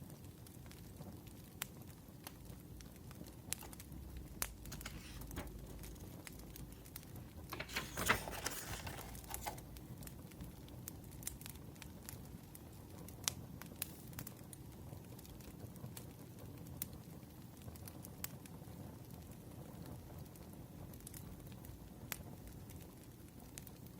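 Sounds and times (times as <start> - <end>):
wood fire crackling: 0.0 - 23.9
paper rustling and crinkling: 3.5 - 10.6.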